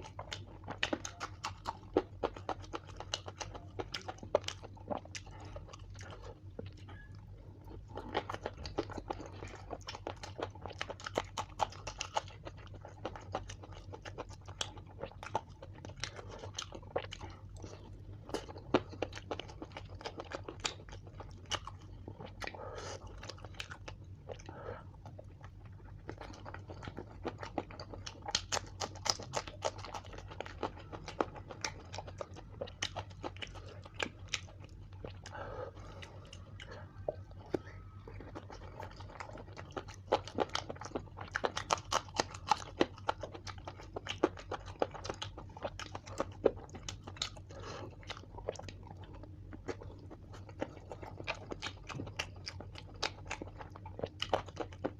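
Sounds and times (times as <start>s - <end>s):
person chewing crunchy food: 0.0s - 54.9s
steady low hum: 0.0s - 54.9s.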